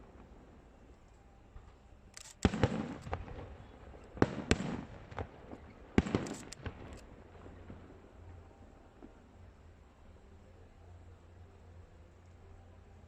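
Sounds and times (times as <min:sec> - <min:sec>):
faint fireworks cracks: 0:00.0 - 0:11.1
fireworks bangs: 0:02.4 - 0:08.0.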